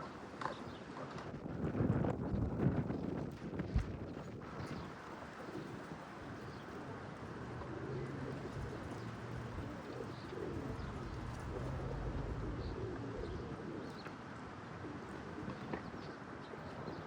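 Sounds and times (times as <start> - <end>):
wind noise on microphone: 1.1 - 5.0, 8.5 - 14.0
low wavering bird calls: 7.9 - 14.2.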